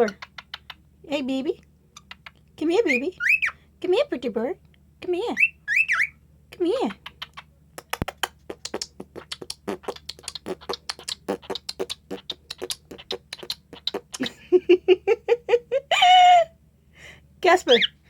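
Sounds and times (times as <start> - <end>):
cockatiel clicking: 0.1 - 0.8, 2.0 - 2.4, 7.0 - 14.3
cockatiel chirping: 2.0 - 3.6, 5.4 - 6.2.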